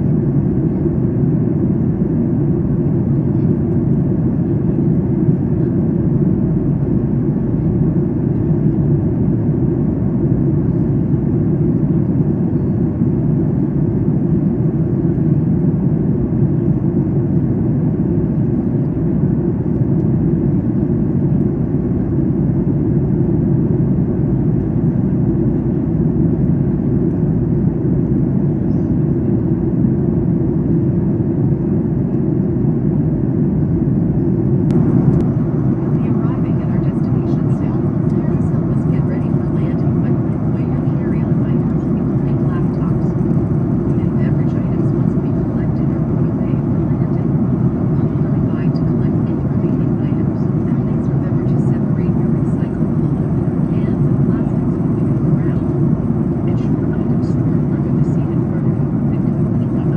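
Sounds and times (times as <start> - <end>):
airplane cabin engine roar: 0.0 - 59.9.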